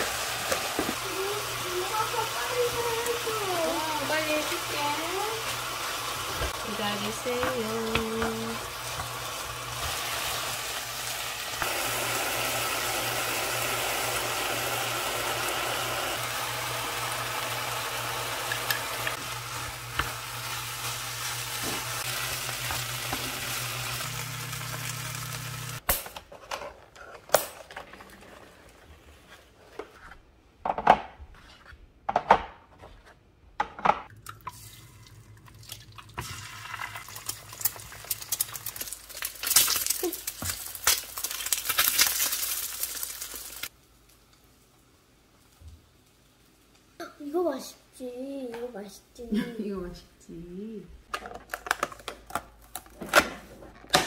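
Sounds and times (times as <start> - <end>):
food sizzling in a frying pan: 0.0 - 25.8, 36.1 - 47.7.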